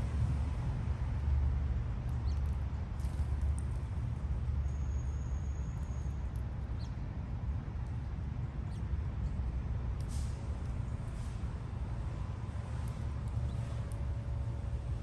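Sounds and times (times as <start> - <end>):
small birds chirping: 2.1 - 2.6, 4.7 - 7.0, 8.6 - 8.9.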